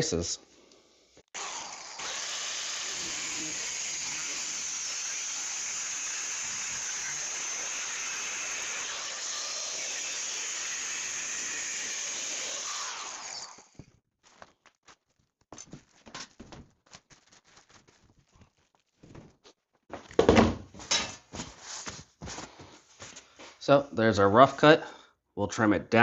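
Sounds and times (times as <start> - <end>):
angle grinder cutting metal: 1.4 - 13.8.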